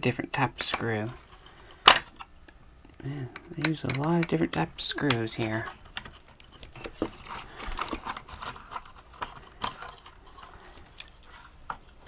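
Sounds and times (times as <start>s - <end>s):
plastic parts clicking: 3.2s - 12.0s.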